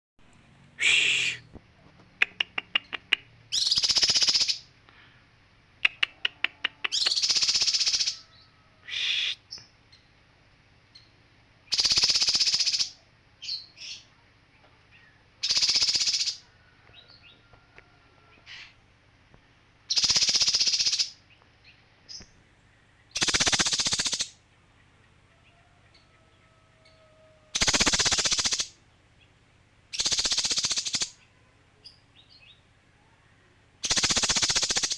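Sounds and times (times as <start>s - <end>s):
songbird harsh rasping calls: 0.8s - 1.5s, 3.5s - 4.6s, 5.9s - 9.6s, 11.7s - 14.0s, 15.4s - 16.4s, 19.9s - 21.2s, 23.1s - 24.4s, 26.8s - 28.8s, 29.9s - 32.0s, 33.8s - 34.9s
sharp bird ticks: 5.8s - 8.1s, 11.7s - 12.8s, 23.2s - 24.4s, 27.6s - 28.7s, 30.0s - 31.2s, 33.8s - 34.9s.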